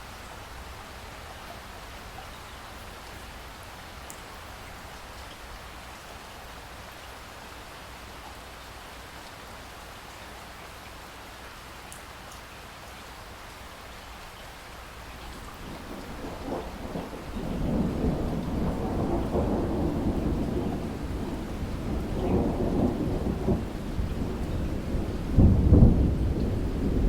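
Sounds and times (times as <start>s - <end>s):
steady rain falling: 0.0s - 27.0s
sharp drip ticks: 4.1s - 4.3s.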